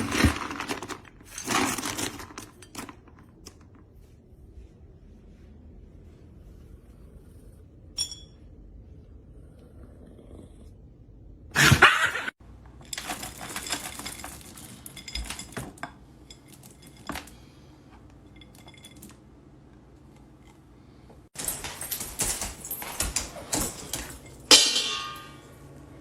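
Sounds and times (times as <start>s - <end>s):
dishes clinking and clattering: 21.4s - 25.9s.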